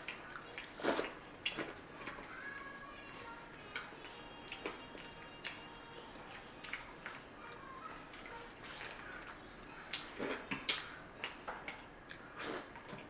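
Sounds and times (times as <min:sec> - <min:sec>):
mouth clicks and smacks eating: 0:07.9 - 0:13.0.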